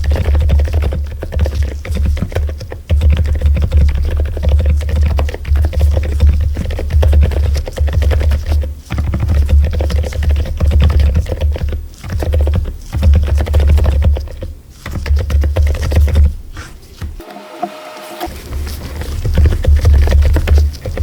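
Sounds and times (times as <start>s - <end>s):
fast typing on mechanical keyboard: 0.0s - 16.3s.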